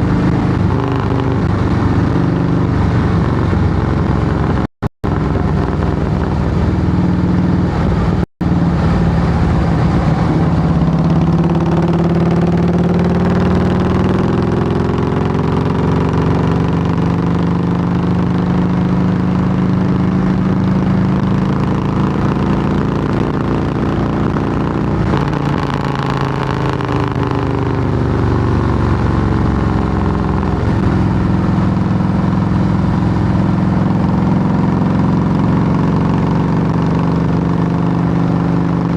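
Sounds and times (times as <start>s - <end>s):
motorcycle engine running loud: 0.0s - 38.9s.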